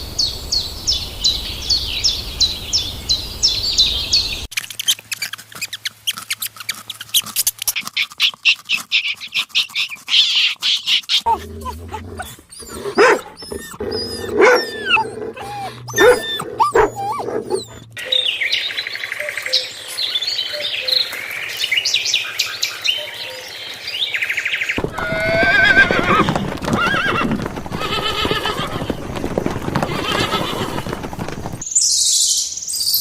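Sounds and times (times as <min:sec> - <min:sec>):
animal calls: 0:04.6 - 0:18.2, 0:24.8 - 0:31.6
horse whinnying: 0:11.2 - 0:17.9, 0:24.8 - 0:31.6.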